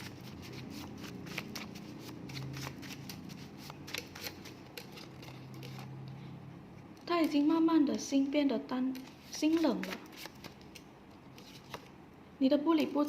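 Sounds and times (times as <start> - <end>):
cards being shuffled: 0.0 - 6.0, 9.0 - 11.9.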